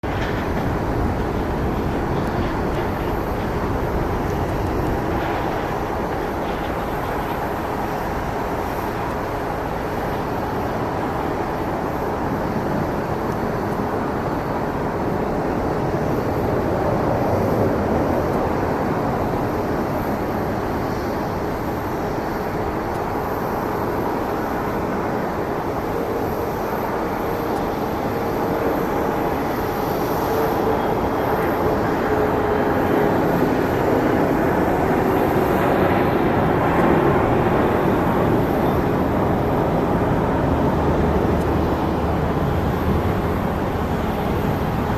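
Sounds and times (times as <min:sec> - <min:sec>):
jet engines at takeoff thrust: 0:00.0 - 0:44.9.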